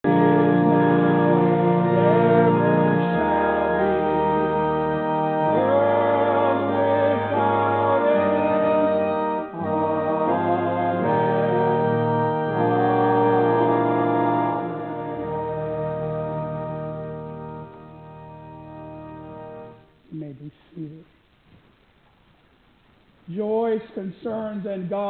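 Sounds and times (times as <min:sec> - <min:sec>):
organ playing chords: 0:00.0 - 0:20.0.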